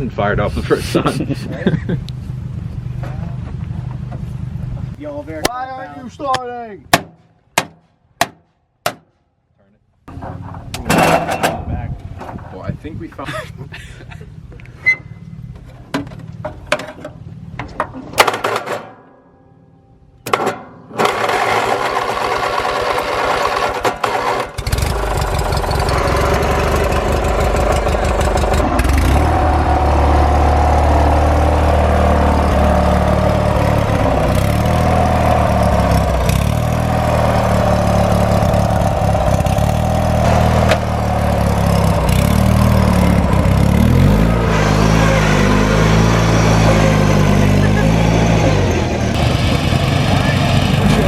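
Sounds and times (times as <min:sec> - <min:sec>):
engine running: 0:00.0 - 0:05.0, 0:20.9 - 0:51.0
engine cranked by electric starter: 0:20.9 - 0:47.4.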